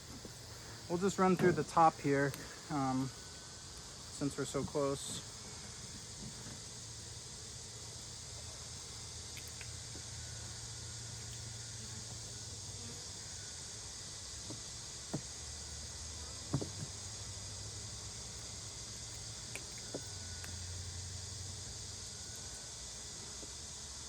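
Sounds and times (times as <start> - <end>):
low fan hum: 0.0 - 13.9
high insect chorus: 0.0 - 24.0.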